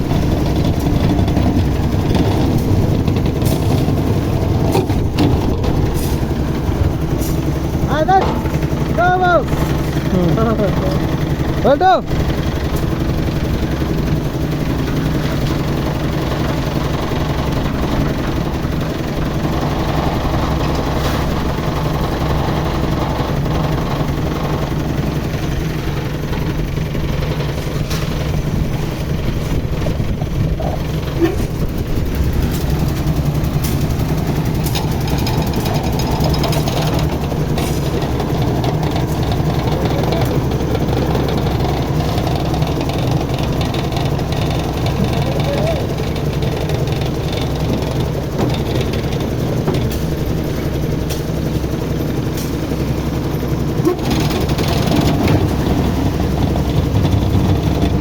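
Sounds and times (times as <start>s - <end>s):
concrete lift machine engine: 0.0s - 58.0s
concrete mixer engine running: 0.0s - 58.0s.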